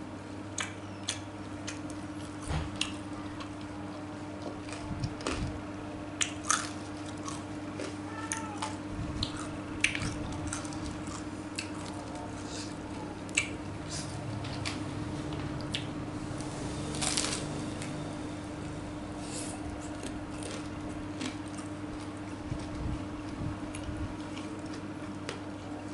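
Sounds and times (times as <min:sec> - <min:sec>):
steady low hum: 0:00.0 - 0:25.9
person chewing food: 0:00.6 - 0:03.7, 0:04.4 - 0:05.6, 0:06.2 - 0:14.7, 0:19.4 - 0:25.5.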